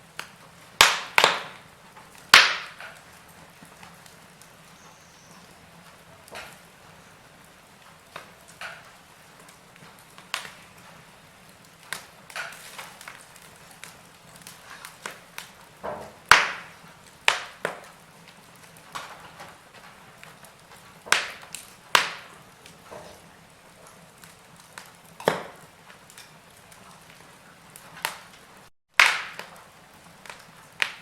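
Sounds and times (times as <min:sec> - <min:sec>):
wood fire crackling and popping: 0:00.0 - 0:31.0.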